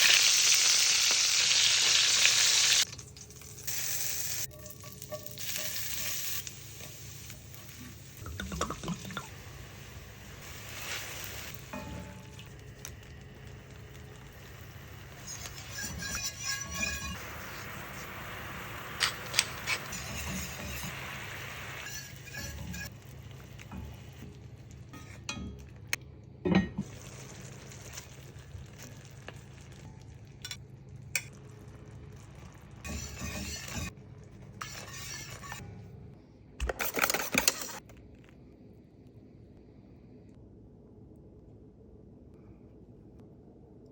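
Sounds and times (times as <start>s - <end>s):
utensils clinking on cookware: 4.4s - 9.3s, 24.9s - 27.0s.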